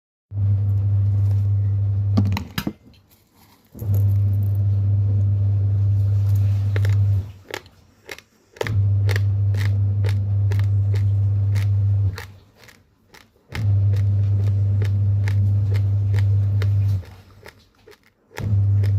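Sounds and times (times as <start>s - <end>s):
loud low hum: 0.3s - 2.4s, 3.8s - 7.4s, 8.6s - 12.4s, 13.5s - 17.1s, 18.4s - 18.9s
rice grains crunched by teeth: 6.6s - 18.9s.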